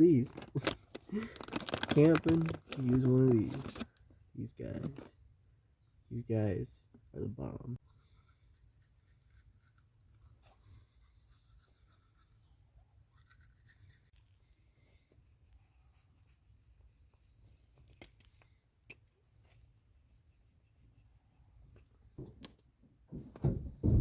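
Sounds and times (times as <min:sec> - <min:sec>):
toothbrush scrubbing teeth: 0:07.8 - 0:14.2.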